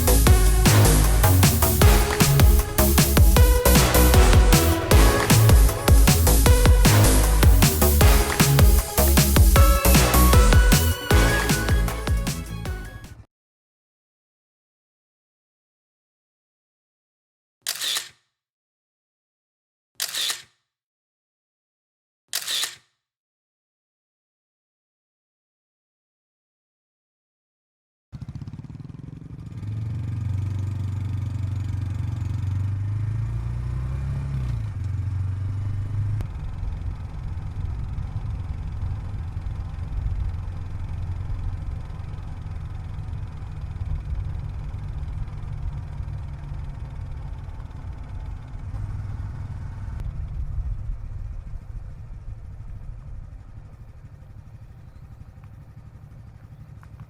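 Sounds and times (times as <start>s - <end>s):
motorcycle engine humming: 0.0s - 13.2s, 28.2s - 57.0s.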